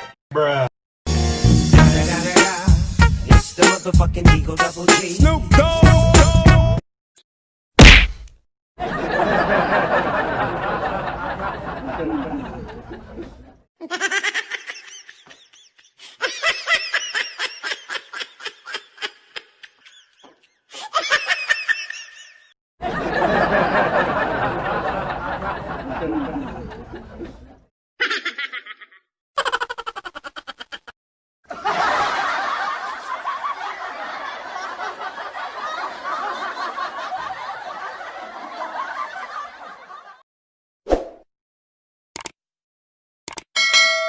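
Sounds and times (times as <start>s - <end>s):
many people laughing together: 8.8s - 30.9s, 31.5s - 40.2s
short rhythmic laughs: 9.0s - 40.2s.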